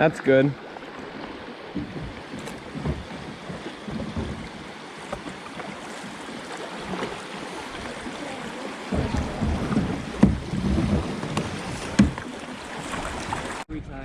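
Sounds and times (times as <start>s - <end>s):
water splashing around kayak: 0.0s - 13.7s
low knocks: 1.6s - 6.1s, 8.8s - 12.5s.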